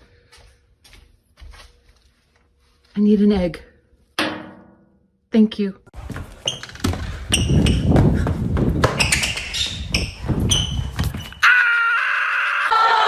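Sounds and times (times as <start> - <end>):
short high squeaks: 9.0 - 11.4.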